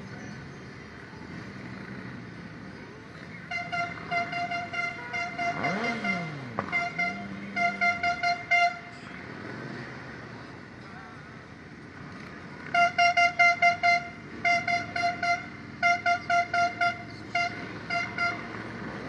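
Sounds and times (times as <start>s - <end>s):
traffic noise: 0.0s - 19.0s
vehicle horn short beeps: 3.4s - 8.9s, 12.7s - 18.5s.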